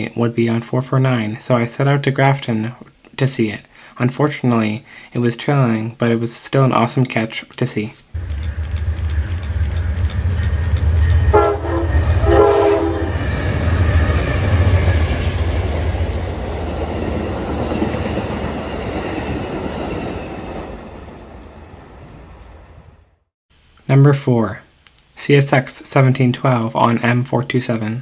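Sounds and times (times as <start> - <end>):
diesel train rumble: 8.2 - 23.1
train cars rolling: 8.2 - 23.1
train horn blasts: 11.1 - 13.8.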